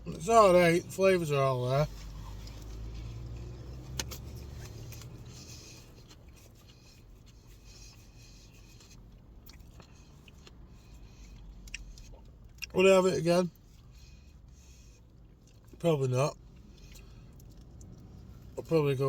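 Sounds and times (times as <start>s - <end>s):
person chewing food: 1.9s - 12.7s, 13.6s - 15.8s, 16.4s - 18.5s.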